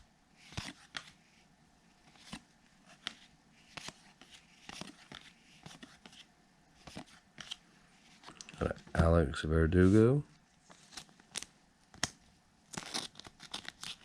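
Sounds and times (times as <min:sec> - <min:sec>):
trading cards clicking and rustling: 0:02.0 - 0:07.6, 0:10.7 - 0:14.0.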